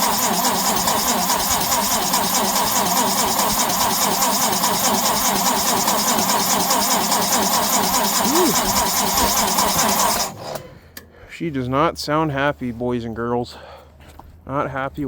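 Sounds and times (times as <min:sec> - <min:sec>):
starter cranking engine: 0:00.0 - 0:11.0.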